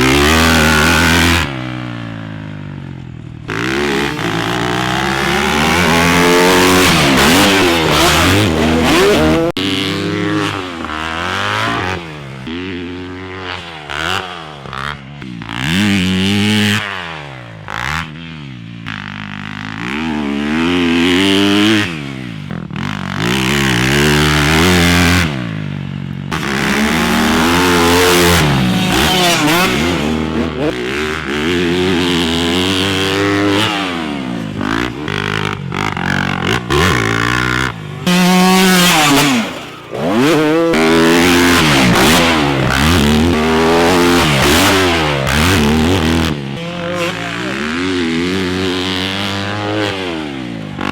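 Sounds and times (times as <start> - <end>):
dirt bike engines revving: 0.0 - 50.9.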